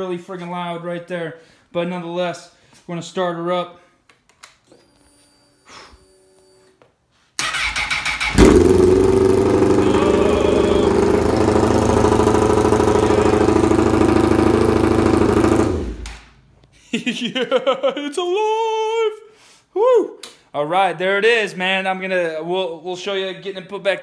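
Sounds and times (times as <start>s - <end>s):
electric starter cranking: 7.4s - 16.3s
loud motorcycle engine idling: 8.3s - 16.1s.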